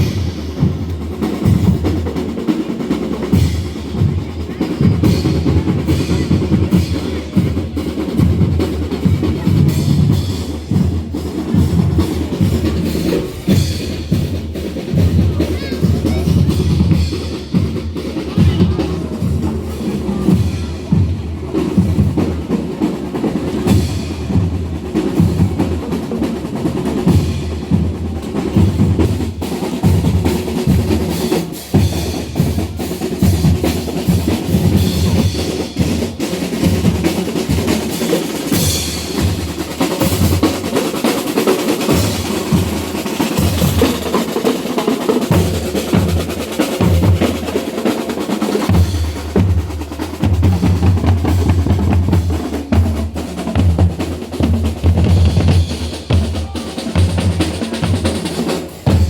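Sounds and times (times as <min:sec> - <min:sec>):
snare drums beating: 0:00.0 - 0:59.0
bass drums beating: 0:48.7 - 0:59.0.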